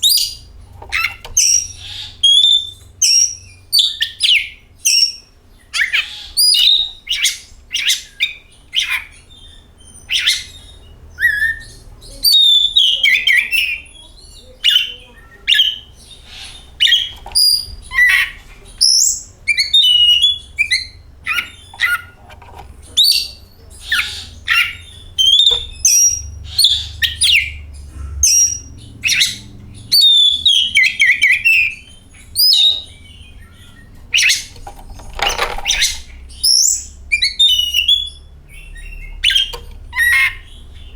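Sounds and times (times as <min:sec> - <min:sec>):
bird singing whistles and chirps: 0:00.0 - 0:22.0, 0:23.0 - 0:27.6, 0:28.2 - 0:34.6, 0:35.5 - 0:40.9.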